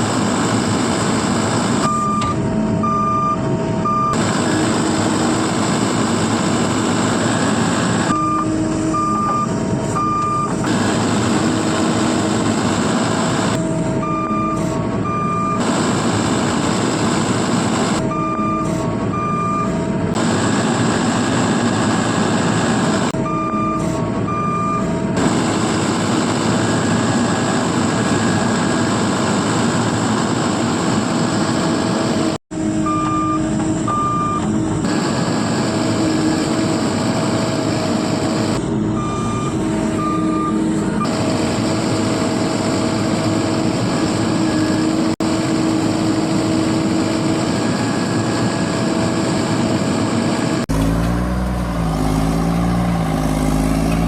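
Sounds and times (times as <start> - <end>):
heavy engine noise: 0.0 - 54.0
reversing alarm beeping: 1.8 - 5.2, 6.7 - 12.6, 13.3 - 17.0, 17.8 - 20.5, 23.1 - 28.5, 32.6 - 45.1.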